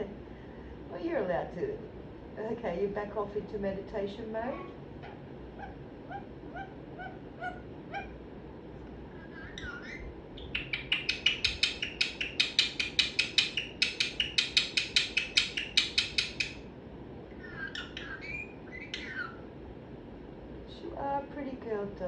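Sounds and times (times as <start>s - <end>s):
parrot clicking chirps: 9.5s - 16.6s.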